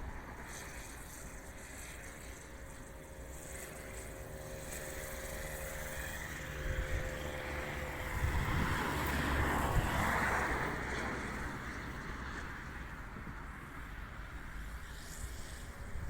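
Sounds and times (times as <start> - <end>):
wind rumble on microphone: 4.8 - 16.0.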